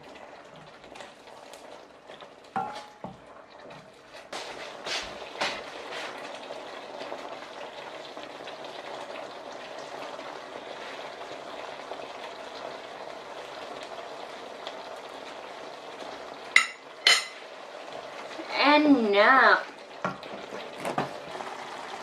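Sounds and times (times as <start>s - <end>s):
sauce bubbling in a pan: 0.0s - 22.0s.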